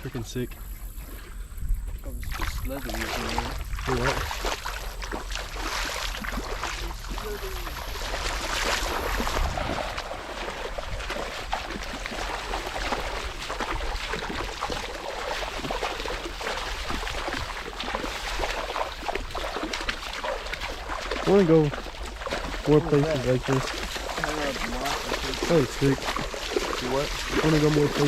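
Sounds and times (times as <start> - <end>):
wind on microphone: 0.0 - 19.5
water splashing from wading: 0.0 - 28.0.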